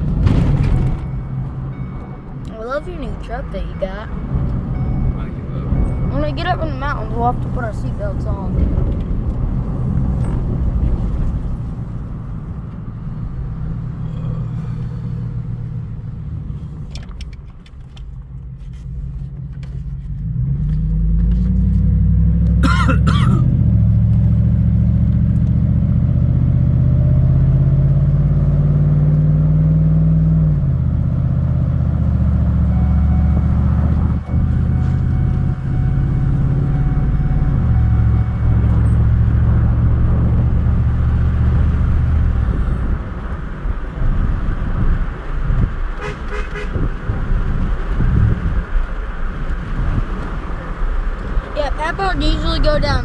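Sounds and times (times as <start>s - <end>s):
road noise: 0.0s - 53.0s
truck engine accelerating: 0.0s - 53.0s.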